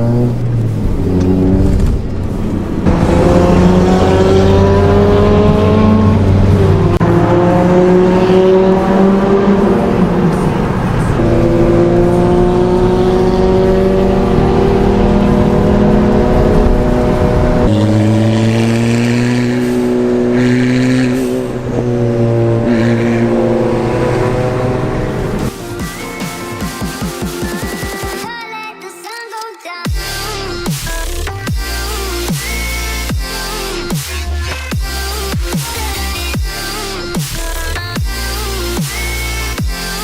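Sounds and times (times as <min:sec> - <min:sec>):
car engine shifting gears: 0:00.0 - 0:26.6.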